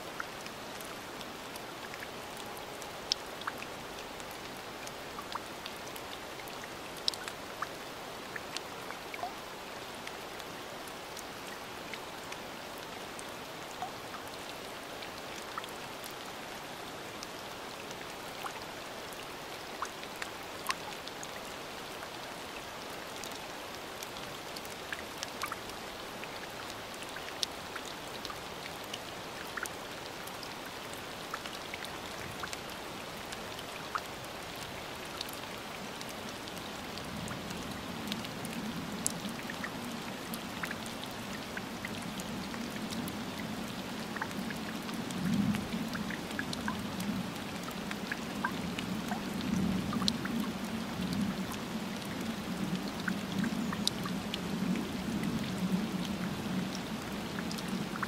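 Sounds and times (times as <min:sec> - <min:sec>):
rain falling on water: 0:00.0 - 0:58.0.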